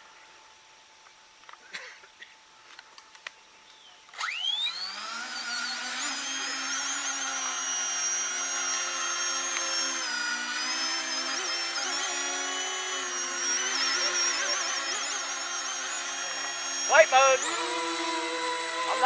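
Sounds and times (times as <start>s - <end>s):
model airplane propellers whining: 4.1s - 19.0s.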